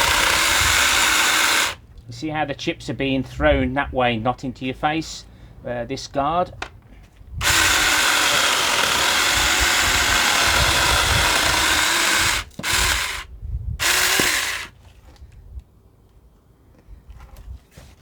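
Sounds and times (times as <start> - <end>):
mini chainsaw cutting wood: 0.0 - 1.8, 7.4 - 14.7.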